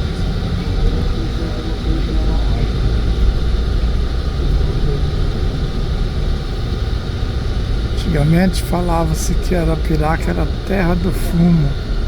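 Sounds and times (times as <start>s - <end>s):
road vehicle engine and tyre rumble: 0.0s - 10.7s.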